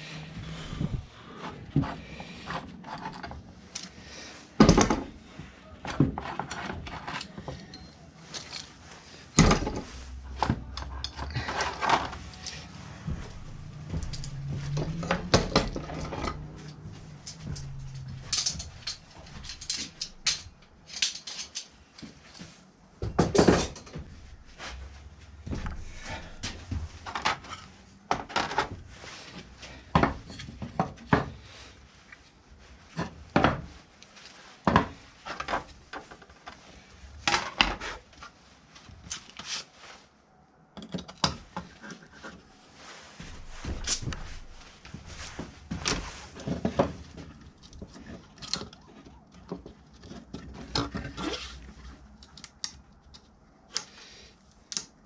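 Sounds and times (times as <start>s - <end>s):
rustling: 0.0s - 23.0s, 24.0s - 40.2s, 41.4s - 52.2s
hard parts clicking and knocking: 9.4s - 24.3s.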